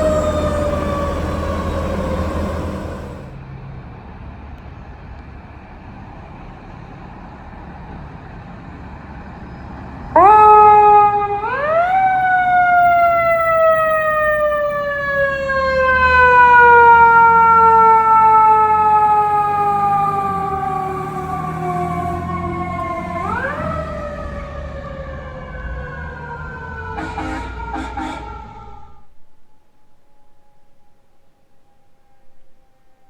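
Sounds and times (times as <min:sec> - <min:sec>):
low engine rumble: 0:00.0 - 0:09.7, 0:19.2 - 0:26.9.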